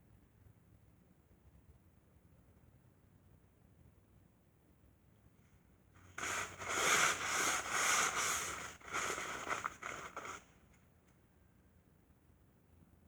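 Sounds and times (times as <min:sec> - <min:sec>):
dry rubbing scuffing strokes: 0:06.2 - 0:10.5.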